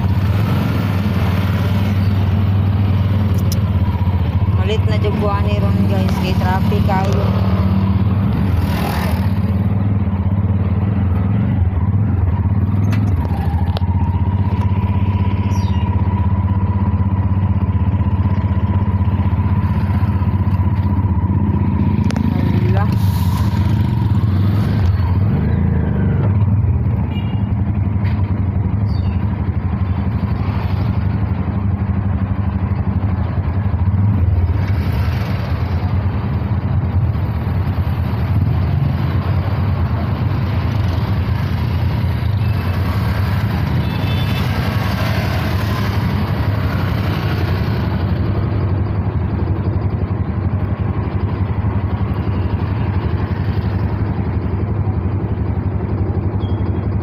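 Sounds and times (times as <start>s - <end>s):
motorcycle engine low drone: 0.0s - 57.0s.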